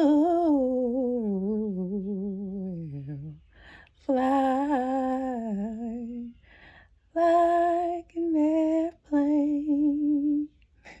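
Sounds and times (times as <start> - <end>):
breath: 3.5 - 4.0, 6.4 - 7.1.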